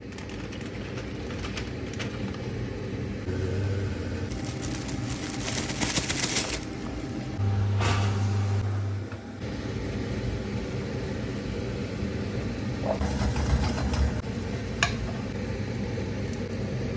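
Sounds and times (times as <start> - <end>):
low electric hum: 0.0 - 16.9
rustling or crinkling: 4.3 - 7.3.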